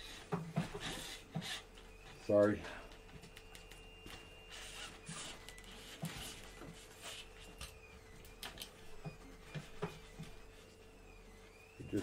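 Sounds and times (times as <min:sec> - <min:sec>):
objects knocking and rustling: 0:00.1 - 0:02.2, 0:05.0 - 0:10.8.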